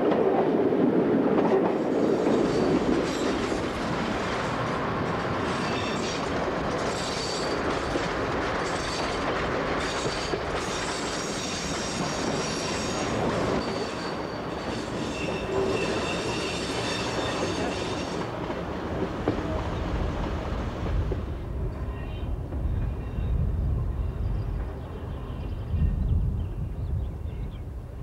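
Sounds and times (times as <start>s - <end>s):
train running noise: 0.0s - 26.6s
high wheel squeal: 5.5s - 7.6s, 9.8s - 18.3s.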